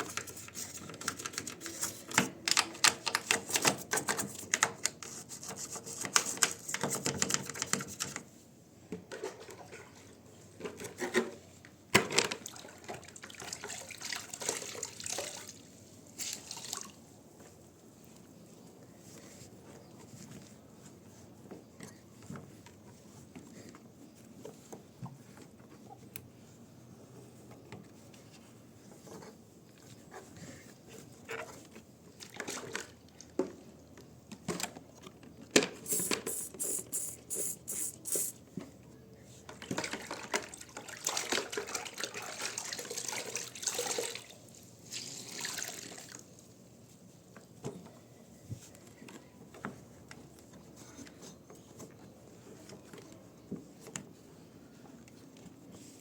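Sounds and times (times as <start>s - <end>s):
water dripping and sloshing: 12.2s - 17.0s, 39.6s - 46.5s.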